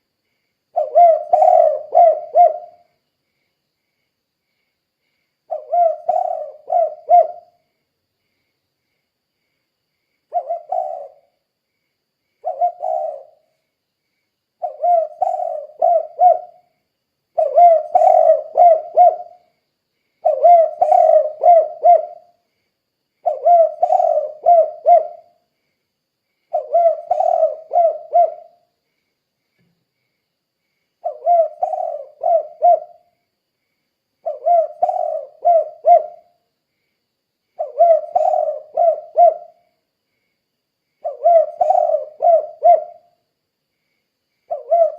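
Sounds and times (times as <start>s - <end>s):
dove cooing: 0.7s - 3.0s, 5.5s - 7.6s, 10.3s - 11.3s, 12.4s - 13.5s, 14.6s - 16.7s, 17.3s - 19.4s, 20.2s - 22.4s, 23.2s - 25.4s, 26.5s - 28.6s, 31.0s - 33.1s, 34.2s - 36.3s, 37.6s - 39.6s, 41.0s - 43.1s, 44.5s - 44.9s.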